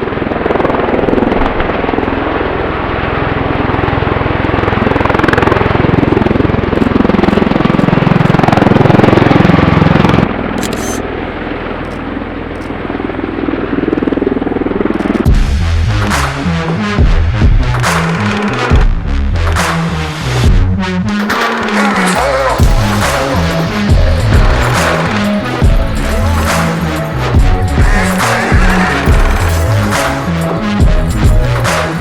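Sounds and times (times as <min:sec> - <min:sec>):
helicopter flying past: 0:00.0 - 0:10.4, 0:11.1 - 0:15.4.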